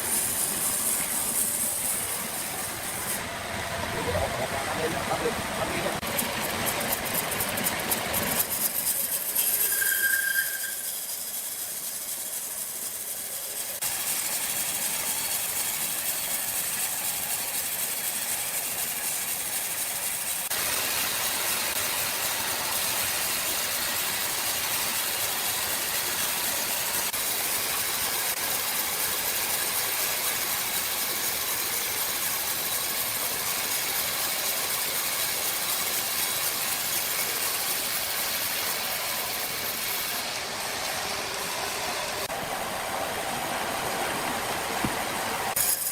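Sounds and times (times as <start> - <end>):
sawmill machinery hissing: 0.0 - 45.9
rapid clicking: 6.0 - 9.6.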